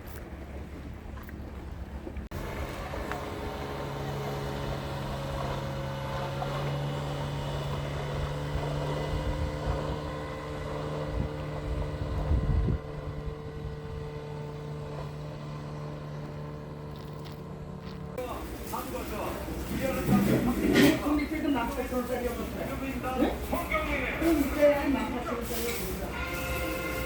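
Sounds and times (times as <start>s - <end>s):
engine running steadily: 0.0s - 27.0s
wind rumbling on microphone: 6.5s - 18.2s.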